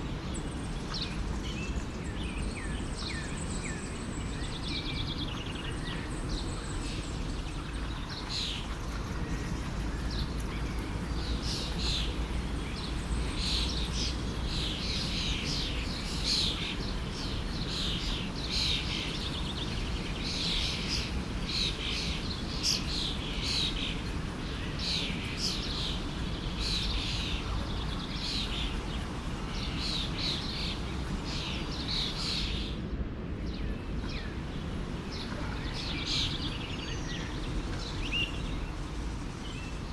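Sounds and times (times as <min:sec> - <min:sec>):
small birds chirping: 0:00.0 - 0:32.8, 0:33.4 - 0:39.9
stream rushing: 0:20.8 - 0:32.6, 0:33.8 - 0:39.9.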